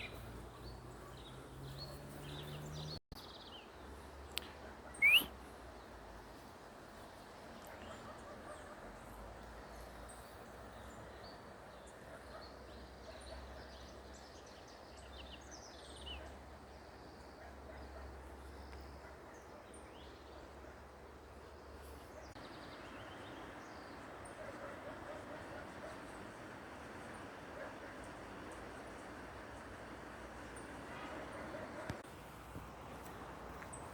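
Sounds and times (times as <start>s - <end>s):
birds chirping: 0.0s - 6.0s.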